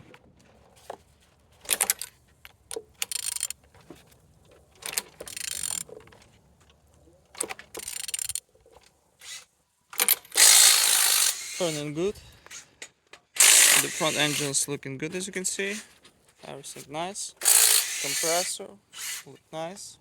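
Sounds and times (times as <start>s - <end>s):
engine turned over by wrench: 1.6s - 4.0s, 4.6s - 6.4s, 7.3s - 8.8s, 9.9s - 11.9s, 13.3s - 14.6s, 17.4s - 18.5s.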